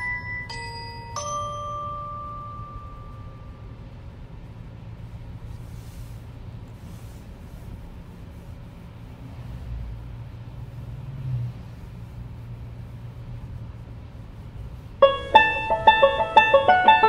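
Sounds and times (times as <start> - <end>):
tyre and road rumble: 14.5 - 17.0
banjo and piano music: 15.0 - 17.0.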